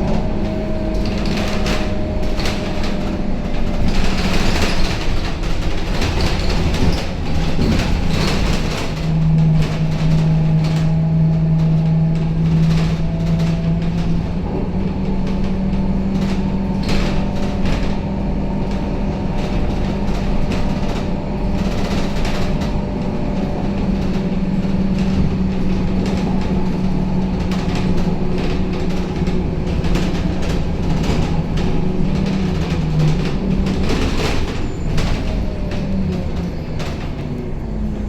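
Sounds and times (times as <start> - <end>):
interior panels rattling: 0.0 - 14.4
bus diesel engine humming: 0.0 - 38.0.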